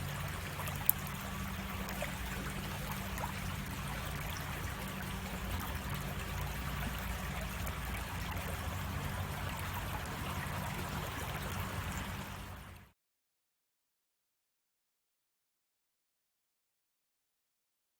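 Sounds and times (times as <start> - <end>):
creek water splashing over rocks: 0.0 - 12.9.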